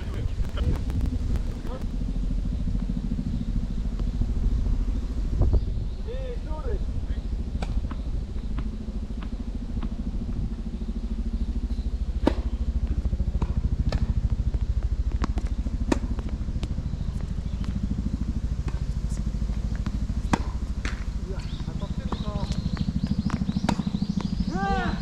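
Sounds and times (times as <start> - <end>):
pulsing low rumble: 0.0 - 25.0
tennis balls struck with rackets: 15.2 - 16.2, 18.7 - 18.9, 19.7 - 22.3, 23.2 - 24.4
tennis balls bouncing: 19.6 - 21.5, 23.2 - 24.4.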